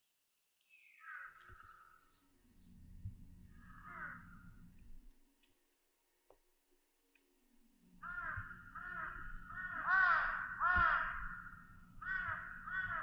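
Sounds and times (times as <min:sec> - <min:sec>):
bird cawing: 0:00.8 - 0:02.1, 0:03.6 - 0:04.4, 0:08.0 - 0:13.0.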